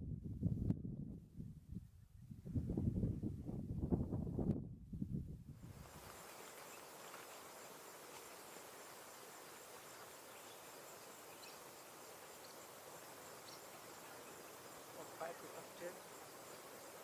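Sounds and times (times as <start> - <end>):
even hiss: 5.6 - 17.0
faint chirps: 5.6 - 17.0
high insect trill: 5.7 - 17.0.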